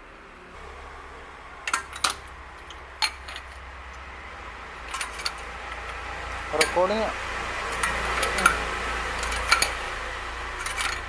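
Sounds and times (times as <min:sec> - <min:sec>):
low steady rumble: 0:00.0 - 0:11.0
metal tools clinking: 0:01.7 - 0:03.6, 0:04.9 - 0:09.9, 0:10.6 - 0:11.0.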